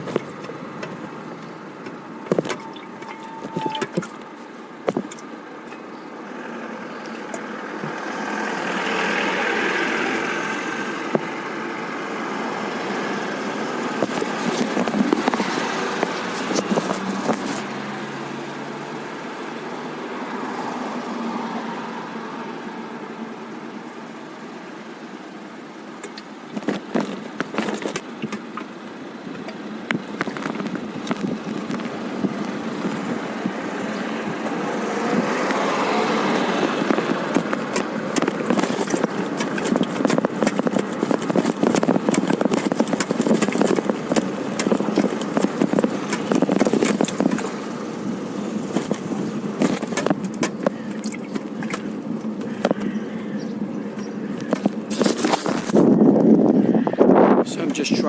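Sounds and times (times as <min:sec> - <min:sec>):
lawn mower running: 0:00.0 - 0:57.8
bicycle rattling and clicking: 0:14.0 - 0:17.7, 0:29.4 - 0:34.6, 0:35.2 - 0:47.6, 0:48.5 - 0:53.0.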